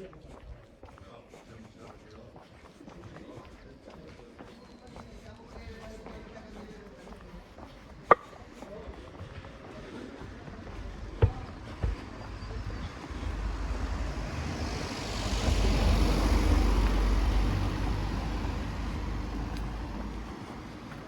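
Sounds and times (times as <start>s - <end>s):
vehicle passing by: 11.5s - 21.0s.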